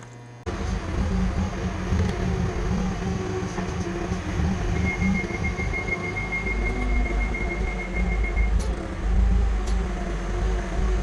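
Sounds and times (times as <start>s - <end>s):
low rumble of running vehicle: 0.3s - 11.0s
high-pitched beeps: 4.7s - 8.6s.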